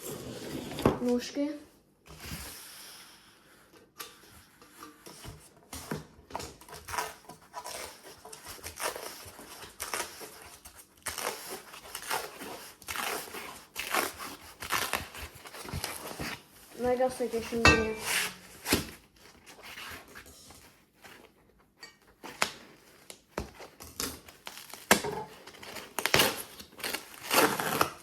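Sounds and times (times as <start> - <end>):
scissors snipping packaging: 5.8 - 16.4, 22.2 - 28.0
wrapping rustling and tearing: 6.4 - 28.0.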